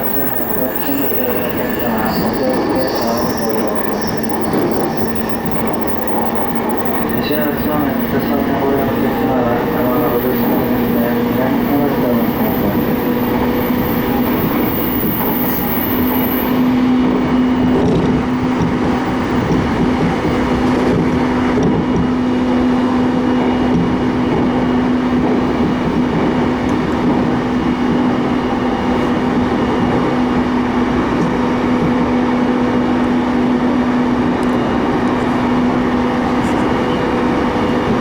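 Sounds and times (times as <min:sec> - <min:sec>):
faint high whine: 0:00.0 - 0:17.8
train rumble from inside car: 0:00.0 - 0:38.0.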